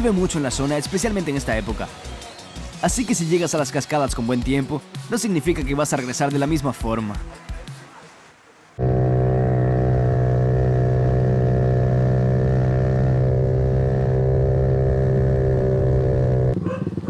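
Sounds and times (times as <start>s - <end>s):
motorbike engine humming: 8.8s - 17.0s.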